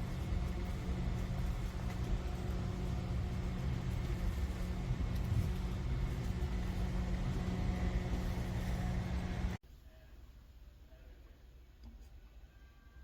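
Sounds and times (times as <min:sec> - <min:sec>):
desk fan whirring: 0:00.0 - 0:09.6.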